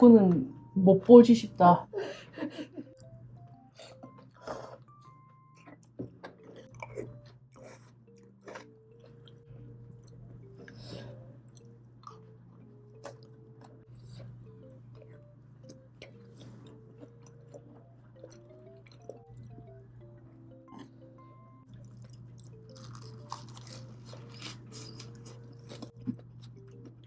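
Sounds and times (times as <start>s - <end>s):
soft background music: 0.0s - 27.0s
chewing and biting: 3.8s - 9.4s, 12.9s - 19.7s, 21.7s - 27.0s.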